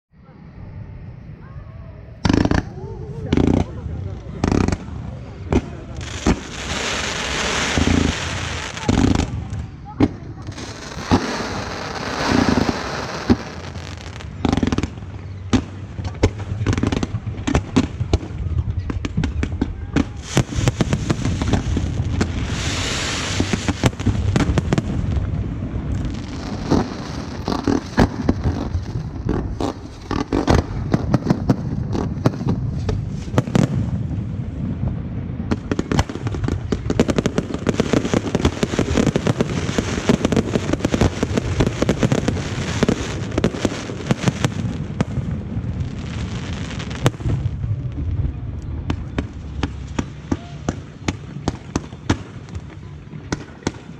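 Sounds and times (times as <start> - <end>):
fireworks bursting and crackling: 2.0 - 53.9
low rumble: 47.1 - 50.3.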